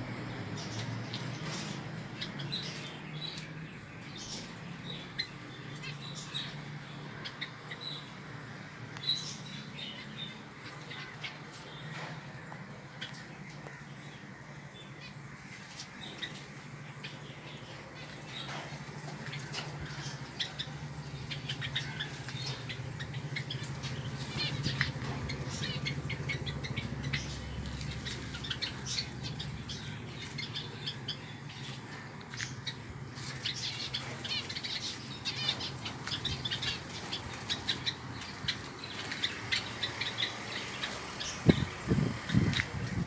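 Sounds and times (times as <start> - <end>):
small birds chirping: 0.0 - 43.0
wings fluttering: 17.8 - 30.6, 33.1 - 43.0.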